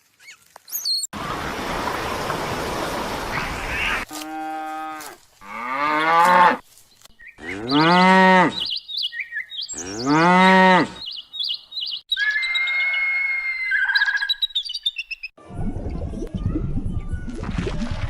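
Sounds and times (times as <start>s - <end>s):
birdsong: 1.9s - 4.1s, 6.9s - 15.4s
small birds chirping: 6.7s - 13.1s, 13.7s - 15.4s
cattle mooing: 7.4s - 8.7s, 9.8s - 11.0s.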